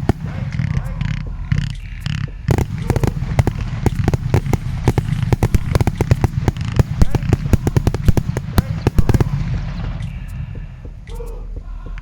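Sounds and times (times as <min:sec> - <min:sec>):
firework cracks and bangs: 0:00.0 - 0:00.7, 0:02.5 - 0:10.2
low rumble: 0:00.0 - 0:12.0.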